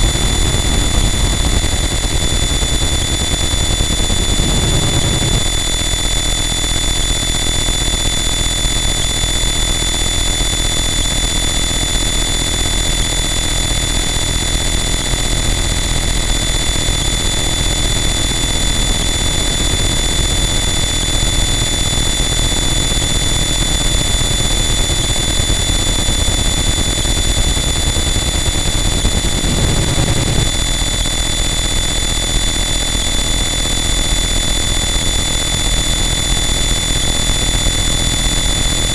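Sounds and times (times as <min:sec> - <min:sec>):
wall of distorted noise: 0:00.0 - 0:05.6, 0:28.5 - 0:30.5.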